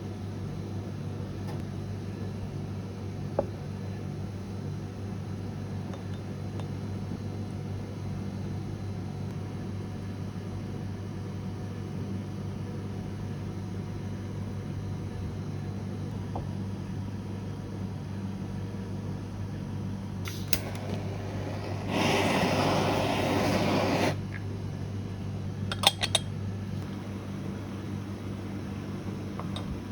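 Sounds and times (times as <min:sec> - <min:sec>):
kitchen machinery humming: 0:20.0 - 0:29.9
loud hiss of noise: 0:20.2 - 0:24.2.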